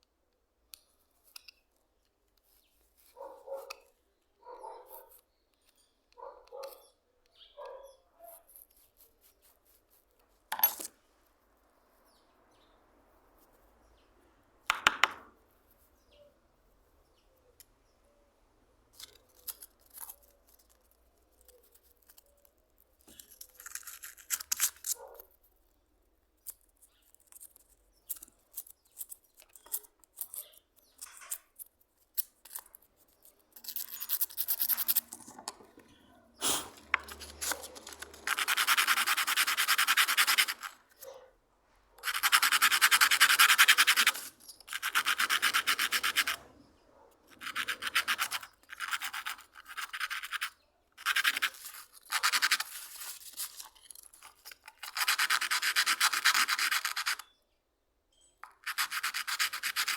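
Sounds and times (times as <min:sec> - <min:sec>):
hand sanding strokes: 0:36.4 - 0:40.7.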